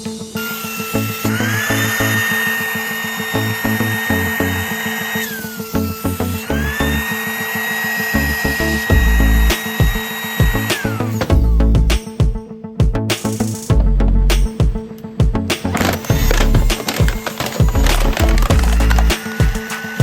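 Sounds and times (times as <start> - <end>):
background music with steady beat: 0.0 - 20.0
small electric motor whining: 0.3 - 11.6, 15.6 - 20.0.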